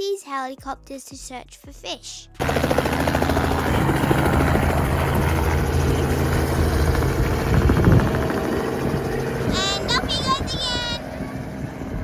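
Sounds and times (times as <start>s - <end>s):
helicopter engine drone: 2.4s - 12.0s
helicopter rotor beating: 2.4s - 12.0s.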